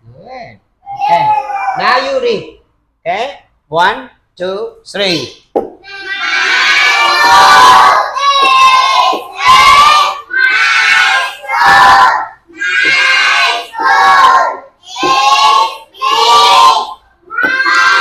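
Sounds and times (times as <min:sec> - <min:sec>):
children reading aloud in unison: 0:00.8 - 0:02.1, 0:05.0 - 0:18.0.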